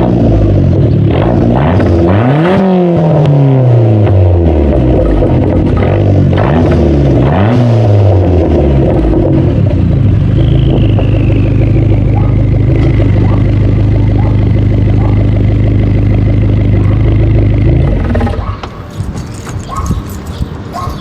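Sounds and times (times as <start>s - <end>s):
car engine idling: 3.7s - 7.2s, 8.4s - 19.0s.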